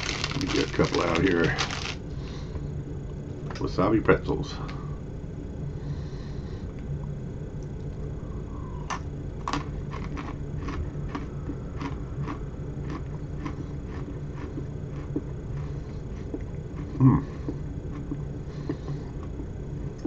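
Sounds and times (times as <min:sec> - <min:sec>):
crunchy chewing: 0:00.0 - 0:02.4, 0:08.7 - 0:20.0.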